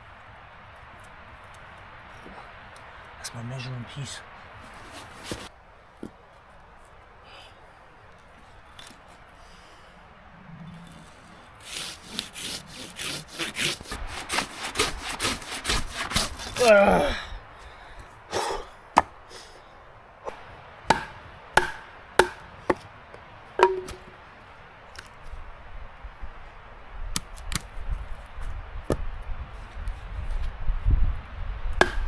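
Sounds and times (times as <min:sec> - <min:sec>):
hand saw cutting wood: 0:11.6 - 0:16.7
sharp knocks: 0:23.6 - 0:24.1.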